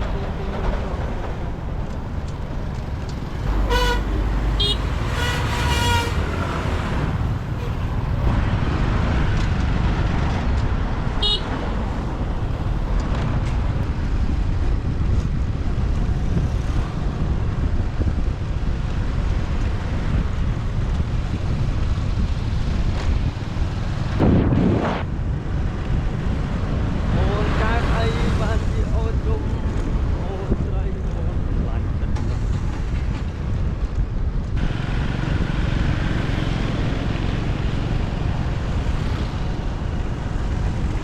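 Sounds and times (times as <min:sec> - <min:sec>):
traffic engine rumble: 0:00.0 - 0:41.0
vehicle passing: 0:02.6 - 0:09.0
short high horn toot: 0:03.5 - 0:06.6
car horn honk: 0:03.5 - 0:06.7, 0:11.2 - 0:11.5.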